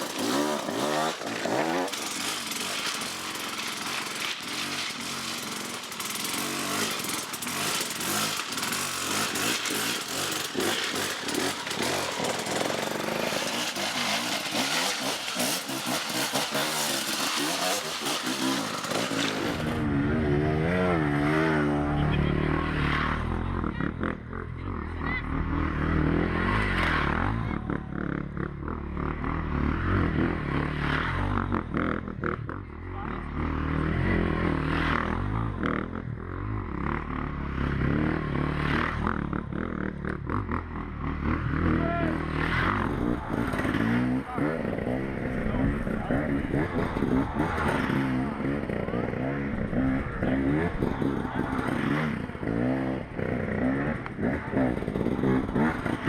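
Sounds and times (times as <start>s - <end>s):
clattering and scraping: 0.0s - 19.8s
motorcycle engines revving: 0.0s - 56.0s.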